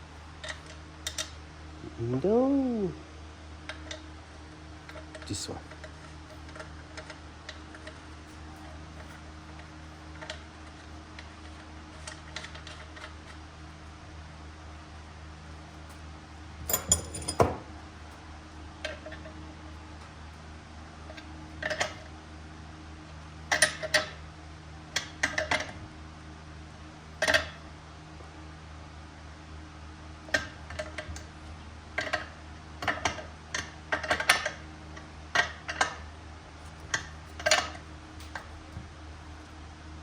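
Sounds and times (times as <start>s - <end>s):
steady low hum: 0.0s - 40.0s
metal parts clinking: 16.7s - 17.6s.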